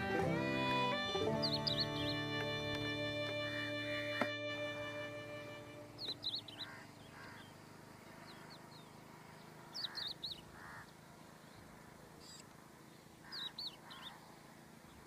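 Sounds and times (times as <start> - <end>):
songbird warbling chirps: 1.2 - 3.7, 5.9 - 15.0.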